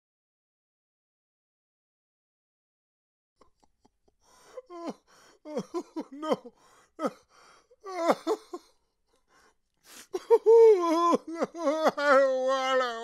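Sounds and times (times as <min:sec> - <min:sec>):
person gasping and crying out: 0:04.3 - 0:08.8, 0:09.4 - 0:13.0.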